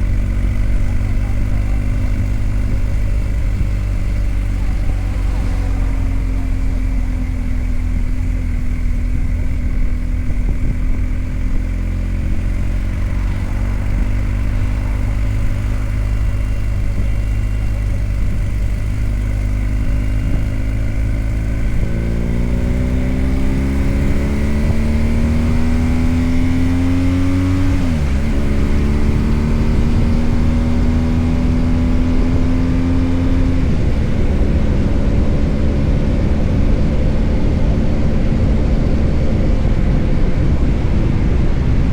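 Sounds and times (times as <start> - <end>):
motorcycle engine revving: 0.0 - 41.9
wind rush: 33.6 - 41.9.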